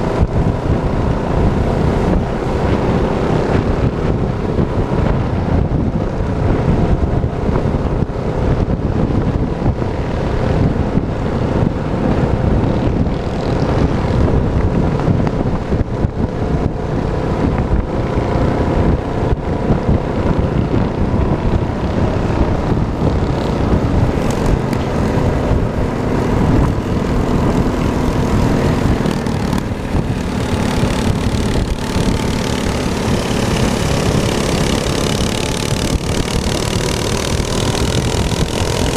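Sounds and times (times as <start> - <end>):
minibike engine running: 0.0 - 38.9.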